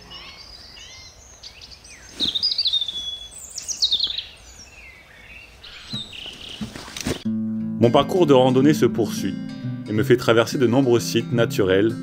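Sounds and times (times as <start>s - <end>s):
songbirds singing: 0.0s - 7.3s.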